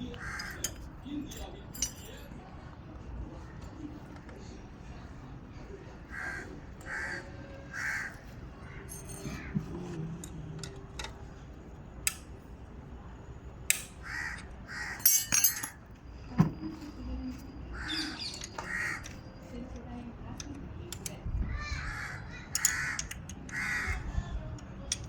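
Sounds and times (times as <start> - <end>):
sharp clinks and knocks: 0.5 - 2.3, 15.0 - 16.5
bird calling: 17.8 - 19.1.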